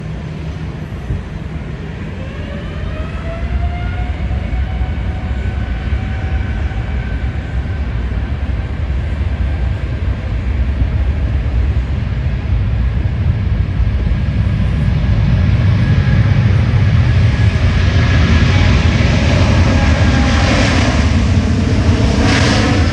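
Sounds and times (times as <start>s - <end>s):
jet engines spooling up: 14.2s - 22.9s.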